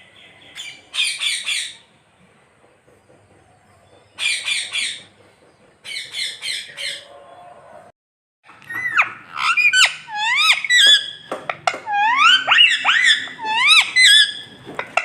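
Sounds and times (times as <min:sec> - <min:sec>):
parrot squawking: 0:08.6 - 0:15.0.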